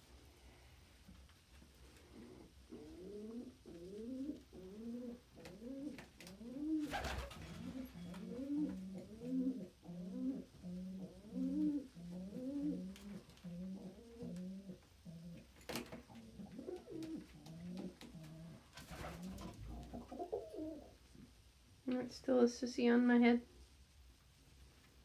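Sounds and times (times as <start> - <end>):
pigeon cooing: 2.0 - 15.5, 16.1 - 21.0.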